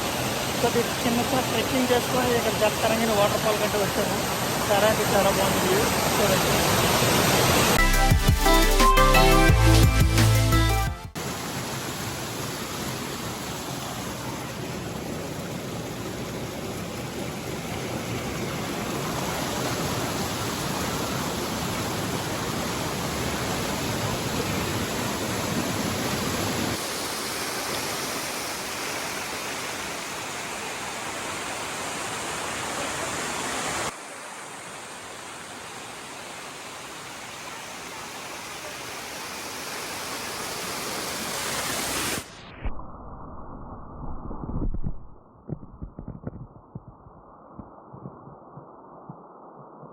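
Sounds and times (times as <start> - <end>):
waterfall rushing over rocks: 0.0 - 7.8, 11.2 - 42.3.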